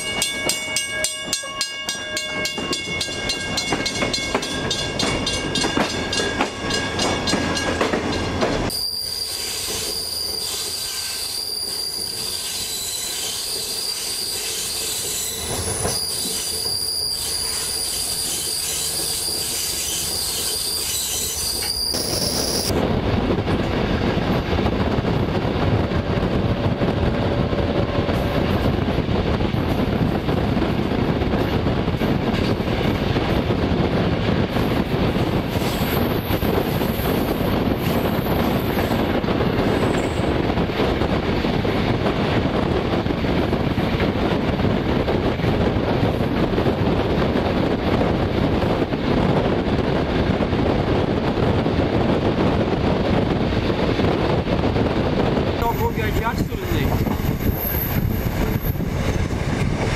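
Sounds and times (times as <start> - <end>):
train rumbling along track: 0.0 - 59.9
train wheels squealing: 8.7 - 22.7, 39.6 - 40.4.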